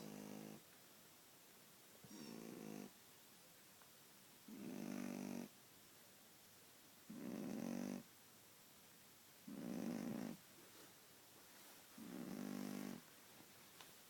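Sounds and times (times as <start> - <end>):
dog snoring: 0.0 - 0.6, 2.1 - 3.0, 4.5 - 5.5, 7.1 - 8.1, 9.5 - 10.4, 12.0 - 13.0.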